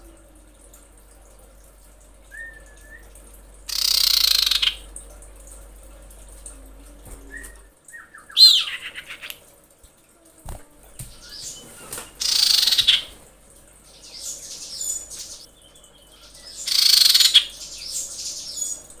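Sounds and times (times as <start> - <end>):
bird whistled calls: 2.3 - 3.1, 3.7 - 4.8, 12.2 - 13.0, 16.6 - 17.5.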